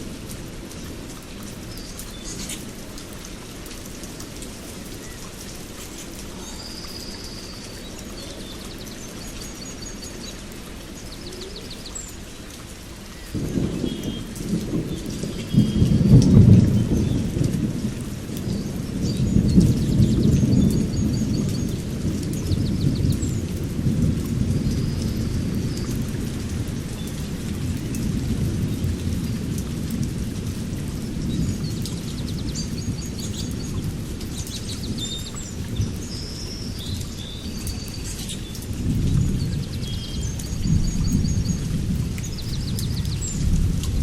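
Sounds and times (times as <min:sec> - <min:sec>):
small birds chirping: 0:04.8 - 0:16.1, 0:31.2 - 0:43.6
thunder rumbling: 0:13.3 - 0:36.9, 0:37.5 - 0:44.0.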